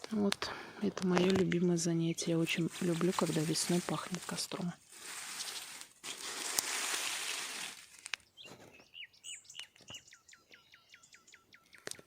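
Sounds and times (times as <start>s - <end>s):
songbird singing: 7.1s - 12.0s.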